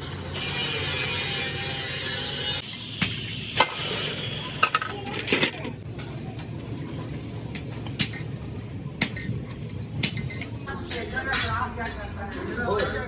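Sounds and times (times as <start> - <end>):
metallic clinks and knocks: 9.0 - 12.0.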